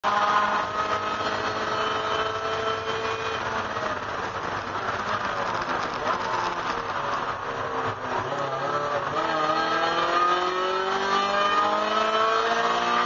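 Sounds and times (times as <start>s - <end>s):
race car engine: 0.0s - 13.0s.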